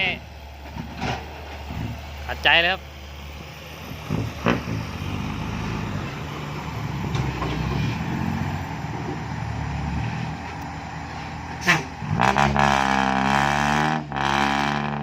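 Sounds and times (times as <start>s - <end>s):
dump truck diesel engine labouring: 0.0s - 15.0s.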